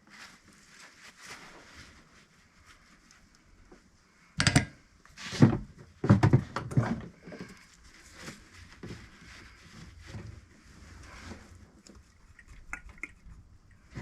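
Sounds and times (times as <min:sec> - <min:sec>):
tools knocking and rattling: 0:04.4 - 0:04.8.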